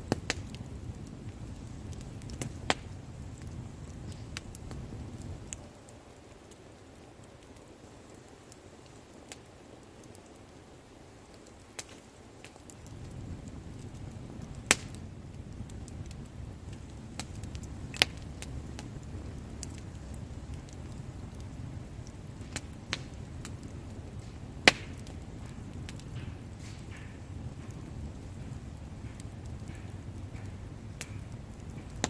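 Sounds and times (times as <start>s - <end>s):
burning wood popping: 0.0s - 32.0s
wood bonfire crackling: 0.0s - 32.0s
low steady rushing noise: 12.0s - 32.0s.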